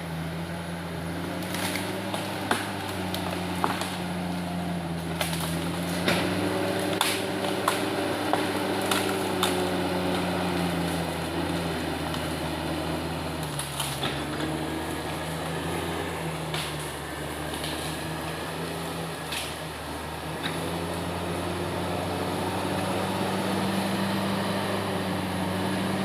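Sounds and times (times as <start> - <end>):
bulldozer diesel engine running: 0.0 - 26.0
sharp knocks and cracks: 1.2 - 12.3, 13.4 - 19.6.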